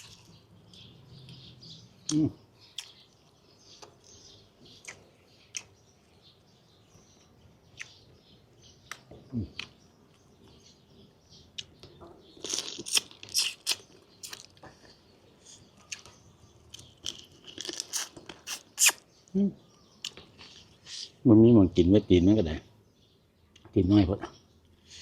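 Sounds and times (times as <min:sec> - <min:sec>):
chewing and crunching chicken: 0:00.0 - 0:01.4, 0:02.0 - 0:06.2, 0:11.6 - 0:19.0
wet smacks and clicks: 0:12.4 - 0:14.6, 0:17.7 - 0:19.0.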